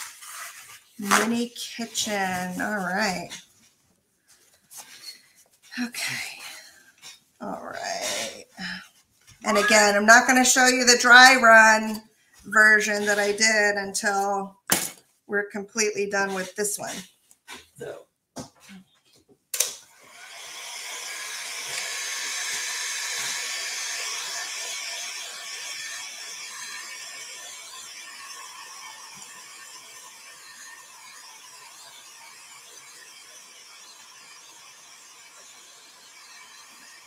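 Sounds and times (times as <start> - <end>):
hair dryer running: 19.9 - 37.0.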